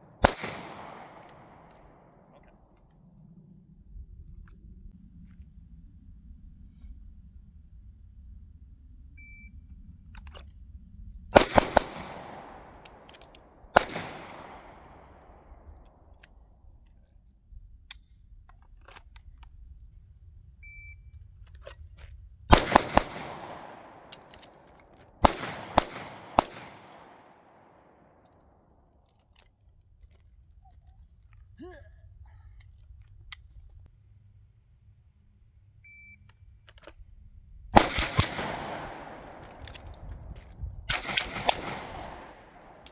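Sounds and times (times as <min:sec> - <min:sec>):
gunshots with echoing tail: 0:00.0 - 0:02.5, 0:11.4 - 0:15.9, 0:22.5 - 0:28.2, 0:37.8 - 0:42.9.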